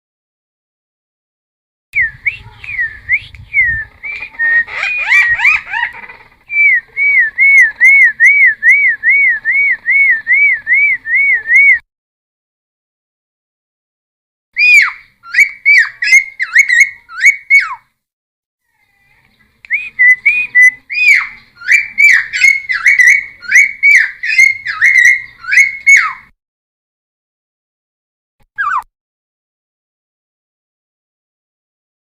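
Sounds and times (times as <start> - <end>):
bird singing whistled notes: 2.0 - 5.7, 6.5 - 11.8, 14.6 - 17.7, 19.7 - 26.3.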